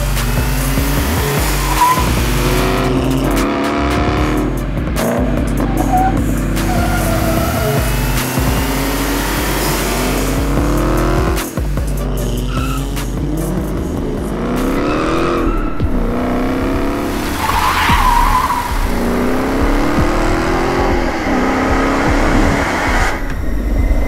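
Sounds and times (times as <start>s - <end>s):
car engine accelerating through gears: 0.0s - 24.0s
tyre squeal: 0.7s - 3.3s, 5.6s - 8.5s, 12.1s - 13.0s, 14.7s - 19.7s.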